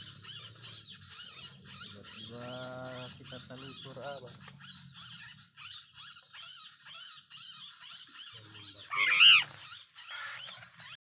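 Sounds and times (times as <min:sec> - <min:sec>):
bird chirping: 0:00.0 - 0:11.0
harsh bird call: 0:08.2 - 0:11.0.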